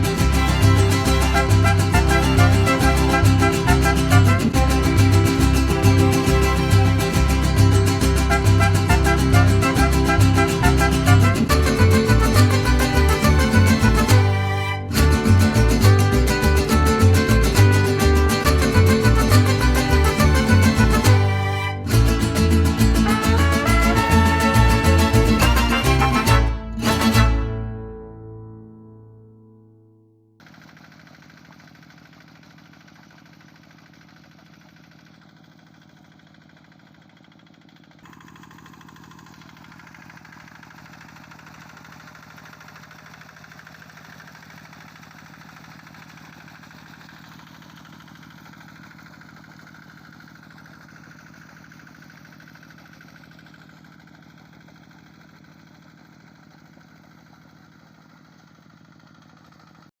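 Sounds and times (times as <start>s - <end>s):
hand tractor engine running: 0.0s - 27.3s, 30.4s - 59.9s.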